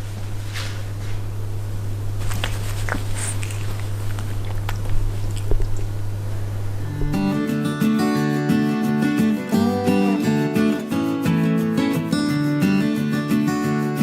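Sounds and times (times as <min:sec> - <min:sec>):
steady low hum: 0:00.0 - 0:13.2
chewing mouth sounds: 0:02.3 - 0:06.0
acoustic guitar music: 0:06.6 - 0:14.0.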